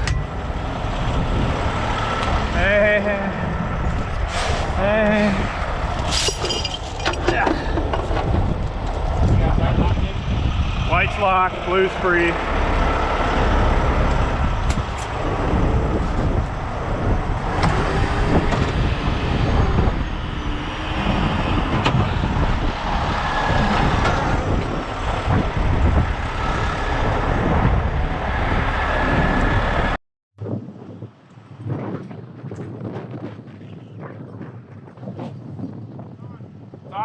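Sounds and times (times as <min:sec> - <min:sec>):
diesel truck engine running: 0:00.0 - 0:06.1, 0:06.8 - 0:30.0
sharp metal clanks: 0:06.0 - 0:07.6.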